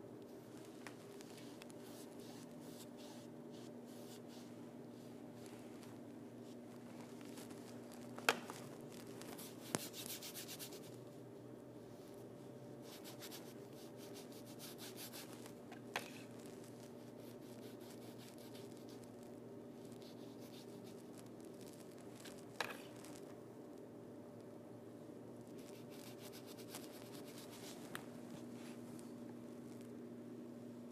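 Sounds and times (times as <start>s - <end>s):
steady low hum: 0.0s - 30.9s
paintbrush brushing over backdrop: 0.5s - 11.0s, 25.5s - 29.1s.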